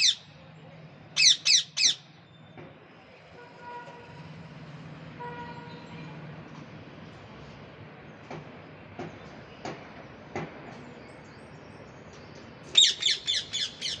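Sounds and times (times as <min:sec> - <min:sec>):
parrot calling: 0:00.0 - 0:00.2, 0:01.2 - 0:02.0, 0:12.7 - 0:14.0.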